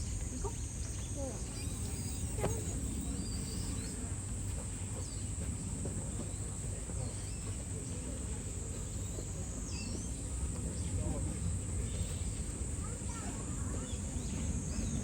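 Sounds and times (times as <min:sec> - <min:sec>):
cicadas shrilling: 0:00.0 - 0:04.4
faint chirps: 0:00.3 - 0:04.2.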